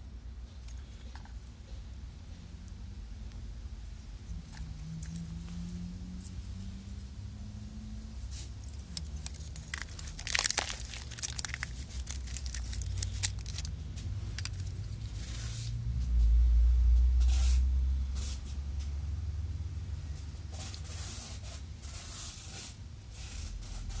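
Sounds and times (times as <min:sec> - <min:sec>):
low rumble: 0:02.3 - 0:20.3
wiring harness rustling and clicking: 0:08.4 - 0:15.3.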